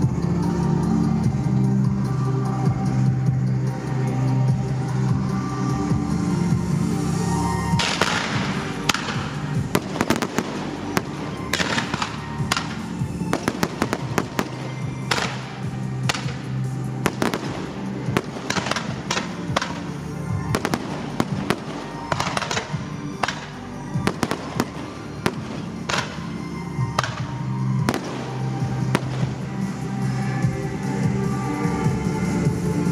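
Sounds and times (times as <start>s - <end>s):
music soundtrack: 0.0s - 32.9s
fireworks bangs: 7.8s - 30.4s
crackling hissing firework bursts: 7.8s - 30.5s.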